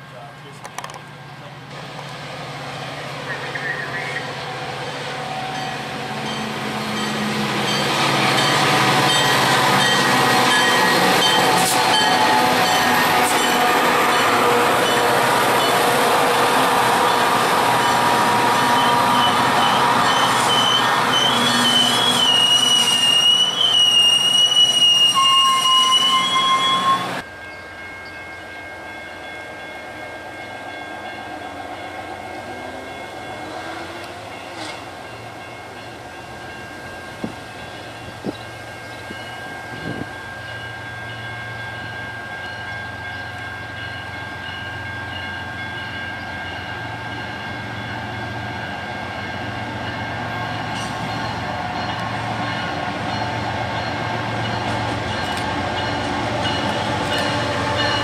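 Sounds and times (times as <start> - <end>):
approaching freight train: 0.0 - 58.0
train wheels squealing: 18.7 - 28.4.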